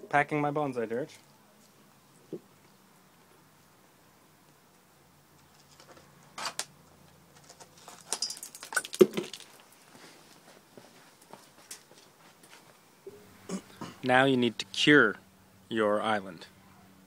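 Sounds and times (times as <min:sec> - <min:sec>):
soil grit crunching: 0:07.3 - 0:12.7.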